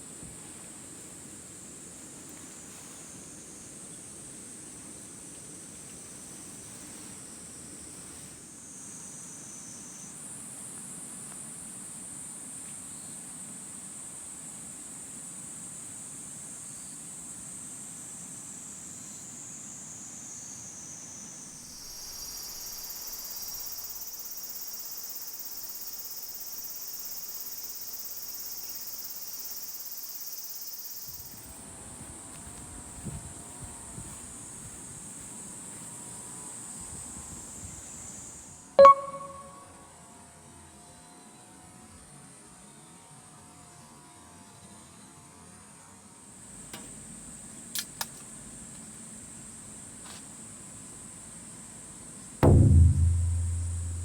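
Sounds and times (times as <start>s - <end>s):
insects chirring: 20.0s - 39.5s
low background rumble: 52.4s - 54.0s.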